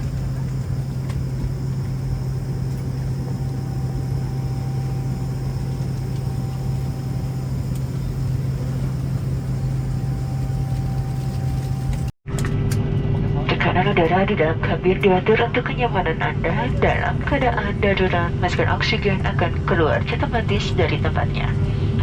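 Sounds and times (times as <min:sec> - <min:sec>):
faint steady whine: 0:00.0 - 0:12.1
aircraft cabin drone: 0:00.0 - 0:22.0.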